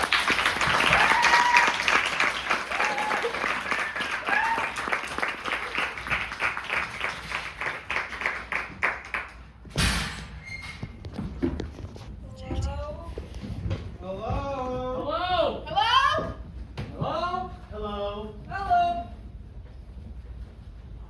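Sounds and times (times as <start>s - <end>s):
audience applauding: 0.0s - 9.5s
whoops: 0.7s - 5.1s
loud bump: 9.6s - 11.0s.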